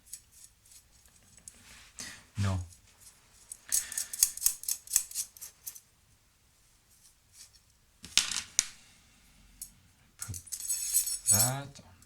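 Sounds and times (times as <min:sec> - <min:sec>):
metal washers and nuts clinking: 0:03.5 - 0:05.8, 0:10.2 - 0:11.6.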